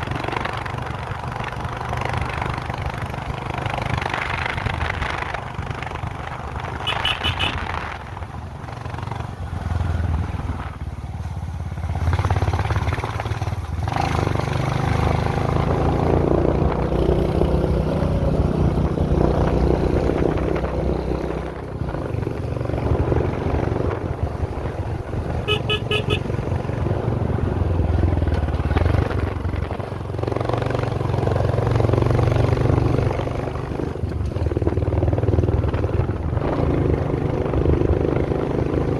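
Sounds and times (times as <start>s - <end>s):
short horn toot: 6.8s - 7.7s, 25.4s - 26.3s.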